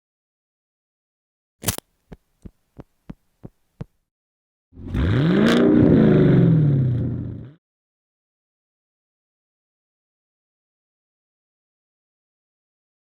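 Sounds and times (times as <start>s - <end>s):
sharp clicks: 1.6s - 2.6s
car engine revving: 4.8s - 7.6s.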